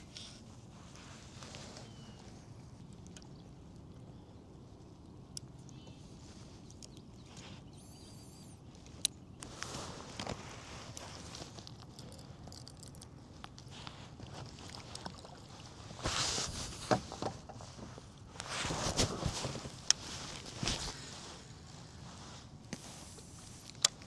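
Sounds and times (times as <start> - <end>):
soft water splashing: 12.5 - 17.0.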